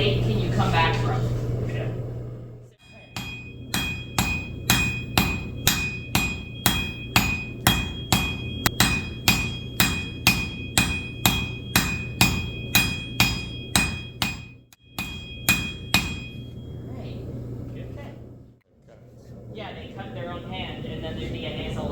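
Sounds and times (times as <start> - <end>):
hammer striking steel on anvil: 2.8 - 16.6.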